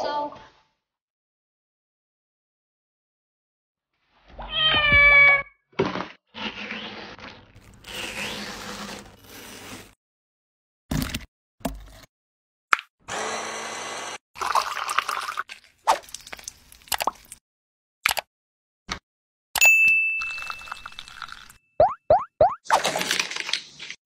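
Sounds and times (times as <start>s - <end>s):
stick blender running: 13.1s - 14.2s.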